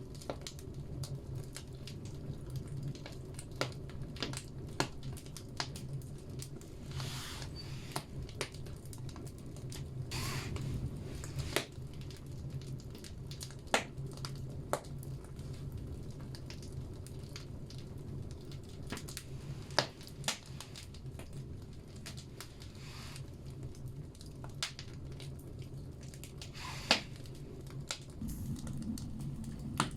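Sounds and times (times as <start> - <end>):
fire rumbling in wood stove: 0.0 - 29.9
logs popping and crackling: 0.0 - 29.9
brief hisses: 7.0 - 8.0, 10.1 - 10.8.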